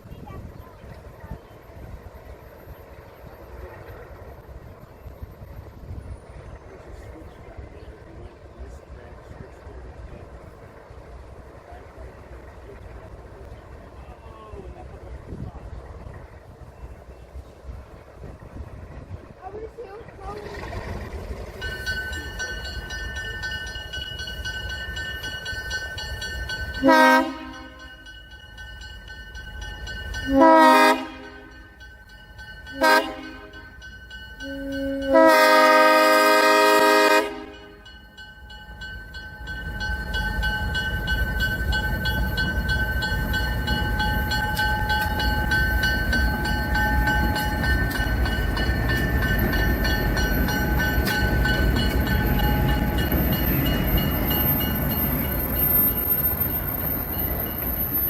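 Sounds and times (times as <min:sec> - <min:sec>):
locomotive engines and train rumble: 0:00.0 - 0:58.0
locomotive air horn blasts: 0:26.8 - 0:27.9, 0:30.3 - 0:31.6, 0:32.8 - 0:33.6, 0:34.4 - 0:37.8.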